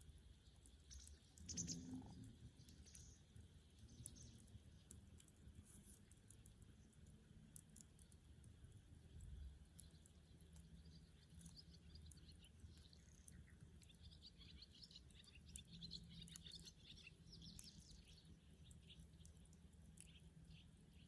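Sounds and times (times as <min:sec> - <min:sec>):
small birds twittering: 0:00.0 - 0:05.3, 0:09.0 - 0:21.0.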